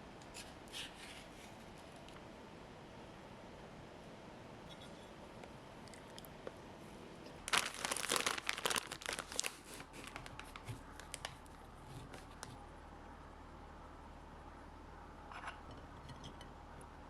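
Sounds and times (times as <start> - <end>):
packaging crinkling: 7.4 - 12.6.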